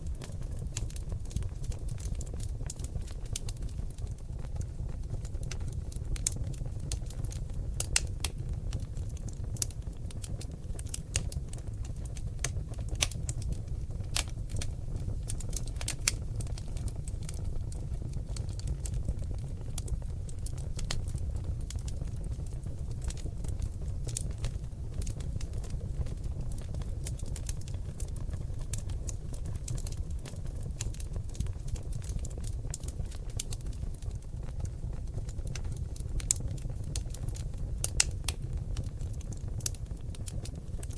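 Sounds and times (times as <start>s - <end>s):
logs burning and crackling: 0.0s - 40.9s.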